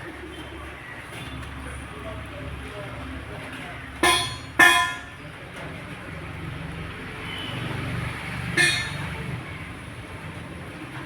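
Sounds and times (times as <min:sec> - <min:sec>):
metallic clinks: 0:08.6 - 0:09.2.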